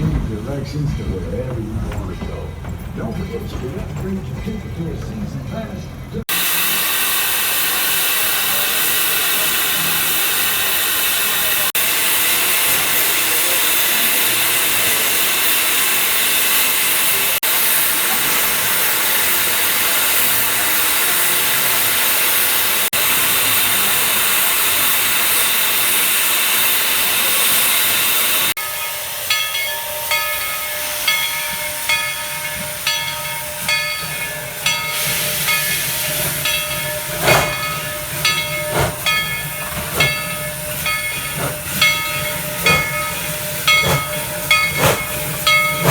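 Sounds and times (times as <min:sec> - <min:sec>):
steam locomotive venting steam: 0:00.0 - 0:45.9.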